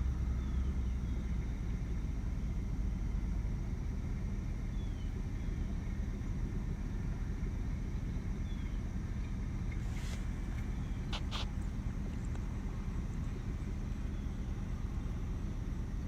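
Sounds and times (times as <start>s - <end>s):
low outdoor rumble: 0.0s - 16.0s
small bird chirping: 9.9s - 11.8s.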